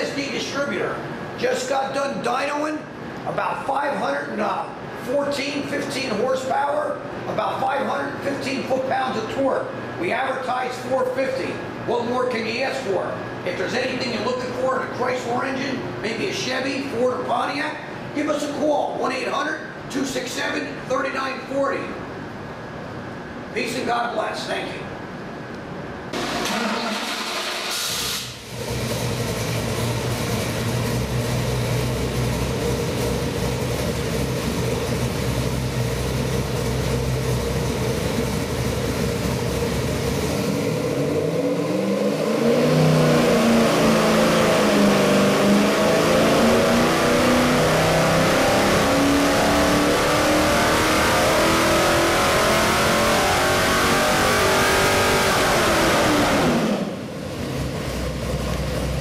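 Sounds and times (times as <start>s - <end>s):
engine revving on dyno: 26.1s - 59.0s
engine idling: 26.2s - 40.9s, 57.1s - 59.0s.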